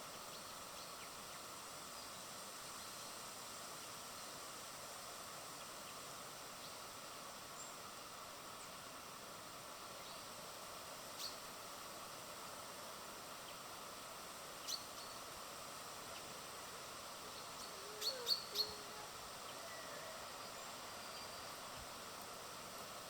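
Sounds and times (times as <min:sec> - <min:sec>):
steady outdoor hiss: 0:00.0 - 0:23.0
birds chirping: 0:17.3 - 0:21.6.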